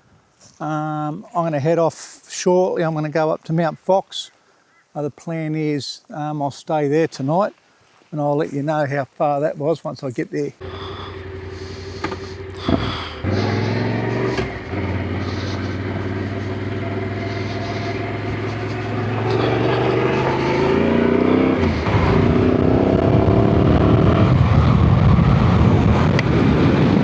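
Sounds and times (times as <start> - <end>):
motorcycle engine accelerating: 10.6 - 27.0
rushing noise: 10.6 - 27.0.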